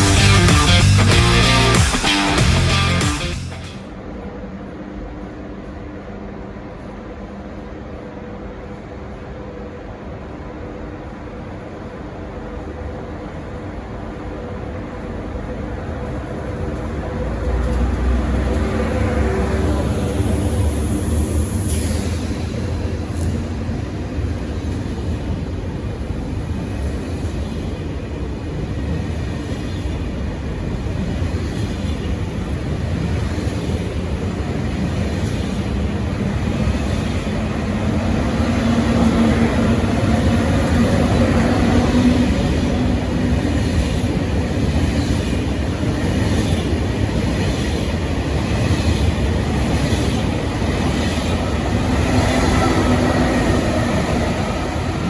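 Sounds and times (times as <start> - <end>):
train rumbling past: 0.0 - 55.0
train wheels clicking: 16.0 - 55.0.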